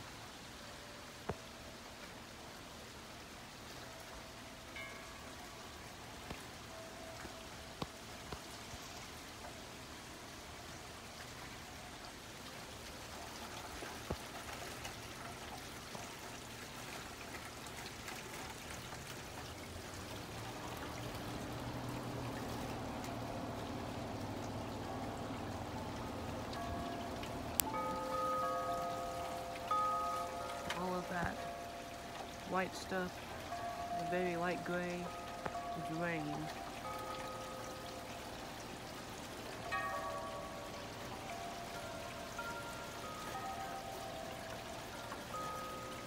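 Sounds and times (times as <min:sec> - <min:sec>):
steady rain: 0:00.0 - 0:46.0
drips tapping: 0:13.5 - 0:46.0.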